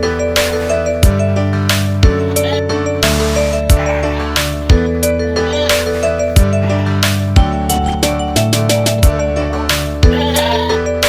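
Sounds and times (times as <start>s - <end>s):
background music with steady beat: 0.0s - 11.0s
goat bleating: 0.6s - 11.0s.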